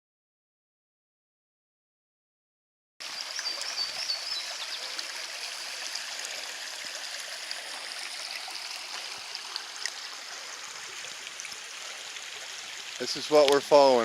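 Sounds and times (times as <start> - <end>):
creek rushing and gurgling: 3.0 - 14.0.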